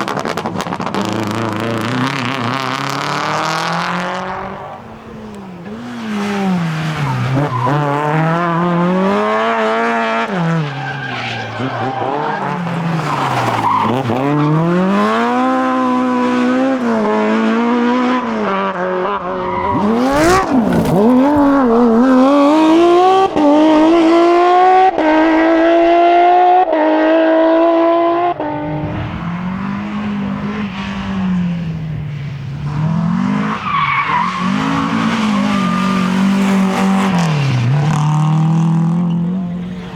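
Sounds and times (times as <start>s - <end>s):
rally car engines revving: 0.0s - 39.9s
tyres squealing: 4.8s - 16.0s, 19.2s - 22.0s, 33.4s - 38.0s.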